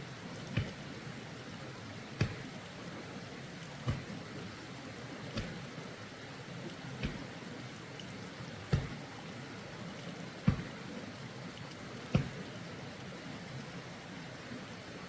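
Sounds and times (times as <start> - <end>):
steady rushing noise: 0.0 - 13.2
sharp heavy thumps: 0.6 - 0.8, 2.2 - 2.5, 3.8 - 4.1, 5.3 - 5.6, 7.0 - 7.3, 8.7 - 9.0, 10.4 - 10.8, 12.1 - 12.4.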